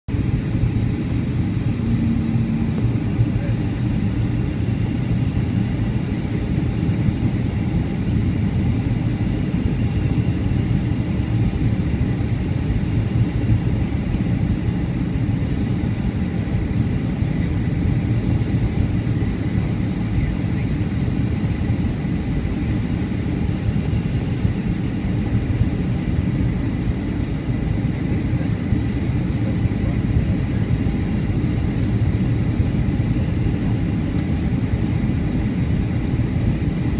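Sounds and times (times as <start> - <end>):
engine and airflow rumble in cabin: 0.1 - 36.9
faint high steady tone: 1.7 - 3.7.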